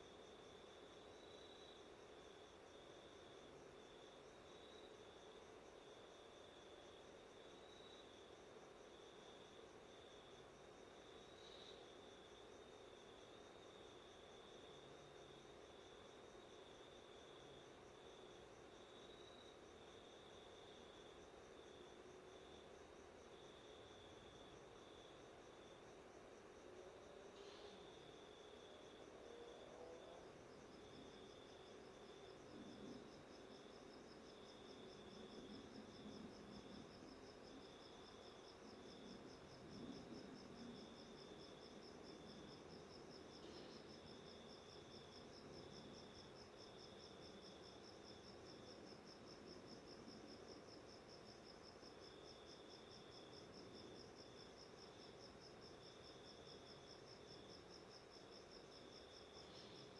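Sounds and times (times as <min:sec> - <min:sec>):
lower insect trill: 0:26.5 - 0:59.9
insect trill: 0:27.2 - 0:59.9.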